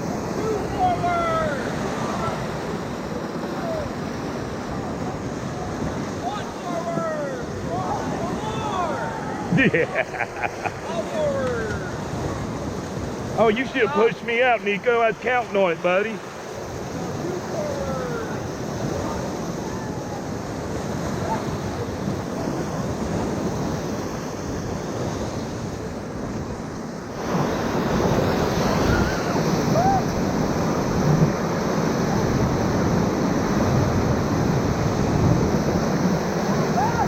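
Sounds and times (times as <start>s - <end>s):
whitewater rapids rushing: 0.0s - 37.0s.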